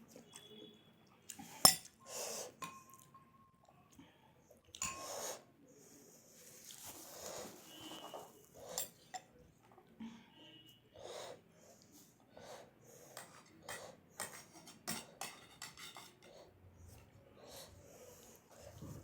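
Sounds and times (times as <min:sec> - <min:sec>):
breathing: 0:03.9 - 0:04.6, 0:10.0 - 0:14.3, 0:17.3 - 0:18.9.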